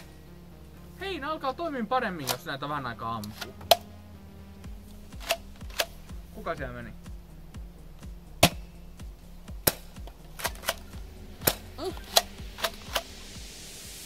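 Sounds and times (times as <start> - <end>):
airsoft gun shots: 8.4 - 8.8, 9.6 - 13.1.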